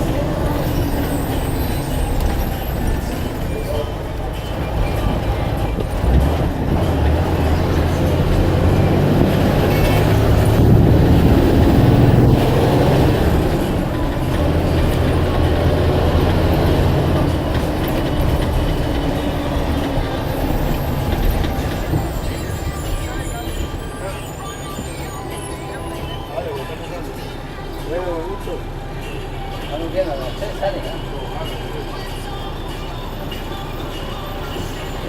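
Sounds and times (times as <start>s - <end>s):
bus engine rumble: 0.0s - 35.0s.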